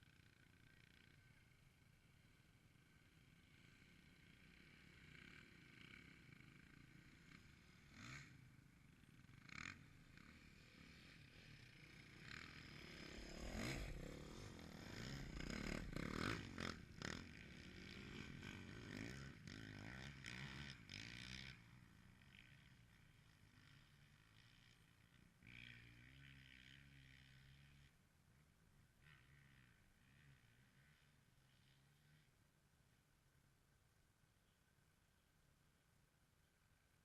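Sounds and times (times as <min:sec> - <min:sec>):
dirt bike engines revving: 0:00.1 - 0:28.0.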